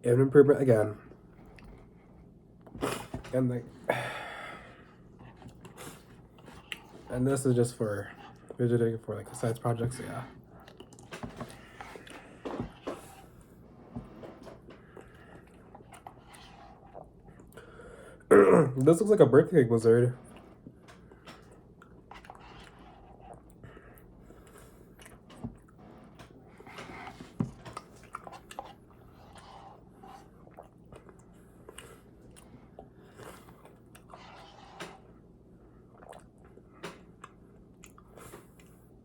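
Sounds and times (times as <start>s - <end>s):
wet chewing with small crunches: 5.1s - 7.1s, 10.0s - 17.7s, 20.2s - 39.0s.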